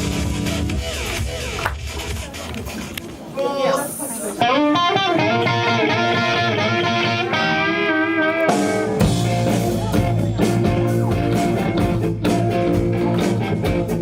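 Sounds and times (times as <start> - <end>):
rock music with guitar: 0.0 - 1.6, 4.4 - 14.0.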